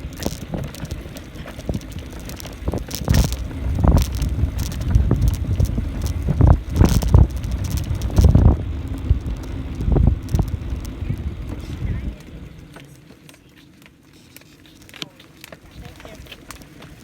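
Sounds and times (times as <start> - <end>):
wind buffeting microphone: 0.0 - 12.7
bicycle clicks and rattles: 0.0 - 17.0.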